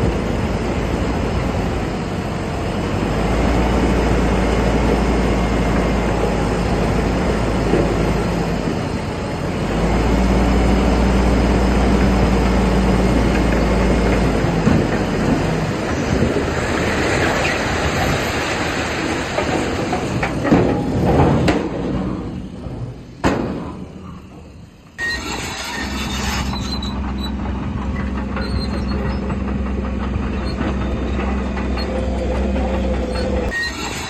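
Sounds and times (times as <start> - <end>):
bulldozer diesel engine: 0.0 - 34.0
clanks: 19.4 - 34.0.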